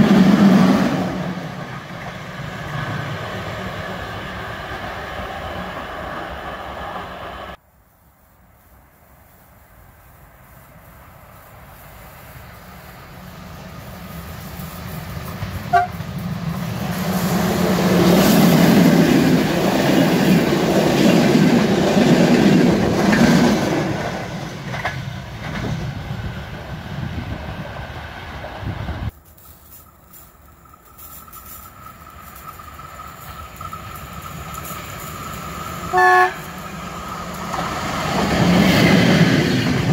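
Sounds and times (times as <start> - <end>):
train passing: 0.0 - 39.9
train horn toot: 15.7 - 16.0, 35.9 - 36.6
wheels clattering over rail joints: 29.1 - 39.9.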